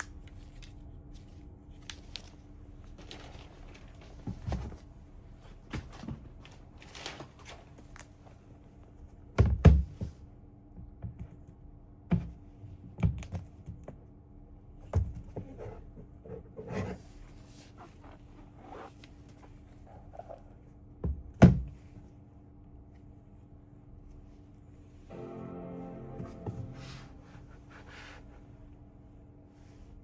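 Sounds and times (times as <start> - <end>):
faint steady hum: 13.8 - 30.0.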